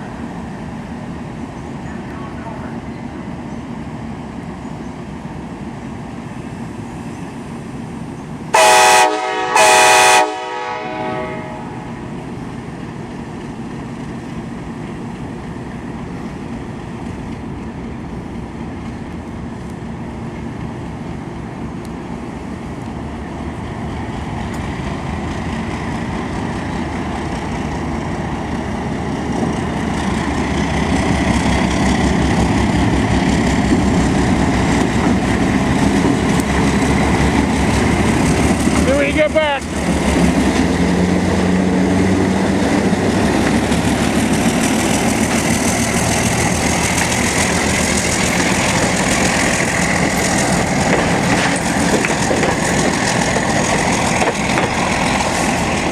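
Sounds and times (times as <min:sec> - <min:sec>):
diesel train rumble: 0:00.0 - 0:55.9
train horn blasts: 0:08.5 - 0:12.0.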